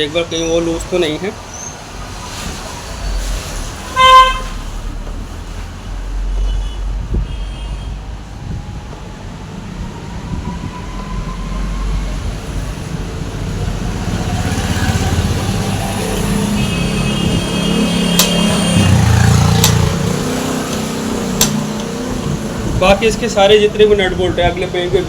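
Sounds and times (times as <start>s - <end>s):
vehicle passing with low rumble: 8.0s - 25.0s
sharp clicks: 18.2s - 18.4s, 20.7s - 22.0s.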